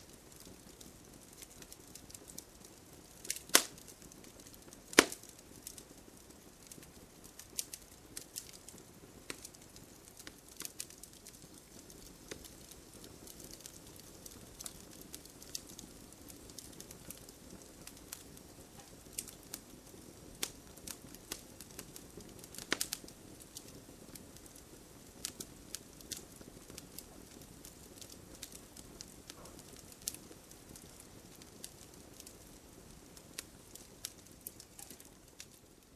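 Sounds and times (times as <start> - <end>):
campfire crackling: 0.0 - 35.9.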